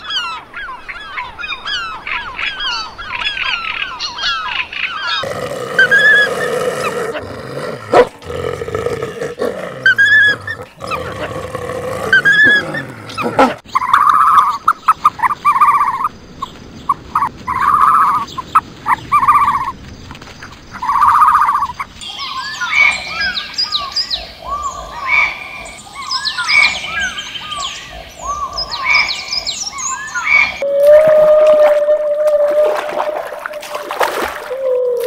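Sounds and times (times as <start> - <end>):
birds chirping: 0.0 - 30.7
whale call: 30.6 - 35.0.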